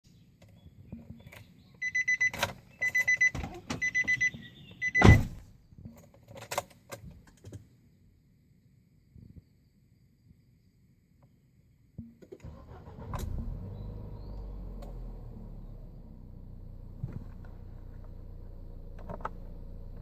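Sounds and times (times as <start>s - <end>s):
car warning chime beeping: 1.8s - 5.3s
loud thump: 5.0s - 5.4s.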